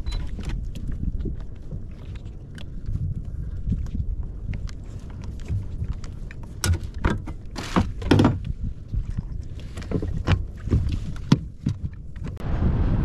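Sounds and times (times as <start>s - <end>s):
steady low rumble: 0.0s - 13.0s
knocks and clicks on kayak hull: 5.3s - 12.4s.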